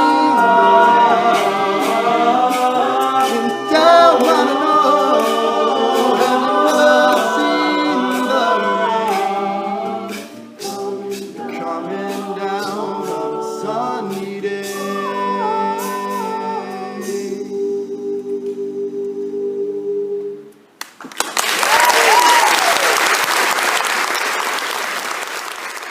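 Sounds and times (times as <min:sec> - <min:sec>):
male group singing chords: 0:00.0 - 0:20.5.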